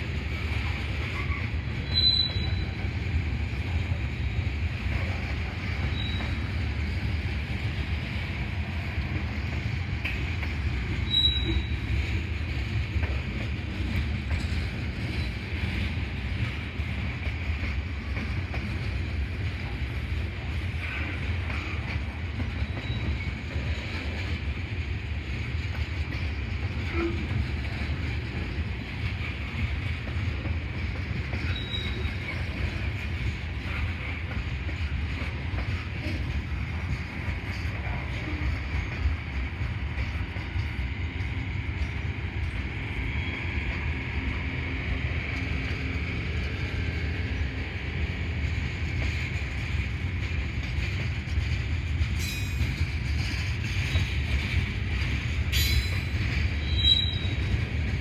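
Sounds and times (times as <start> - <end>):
train wheels rumbling on track: 0.0 - 58.0
high-pitched wheel squeals: 1.2 - 2.8, 5.8 - 6.4, 11.0 - 11.8, 31.4 - 32.4, 55.6 - 57.5.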